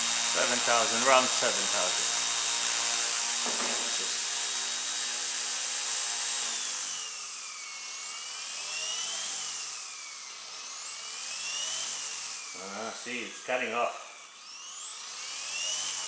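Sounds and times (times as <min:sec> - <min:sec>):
model helicopter rotor whine: 0:00.0 - 0:16.0.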